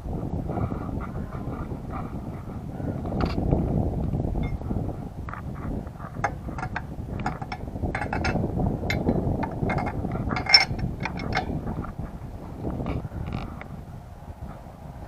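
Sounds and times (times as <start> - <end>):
low background rumble: 0.0 - 15.0
metallic hand tool clicks: 6.6 - 11.5.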